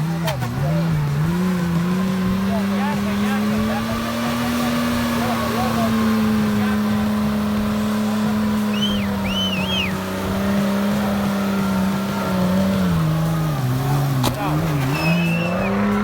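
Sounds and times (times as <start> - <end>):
petrol engine running: 0.0 - 16.0
brief high squeaks: 14.7 - 15.8.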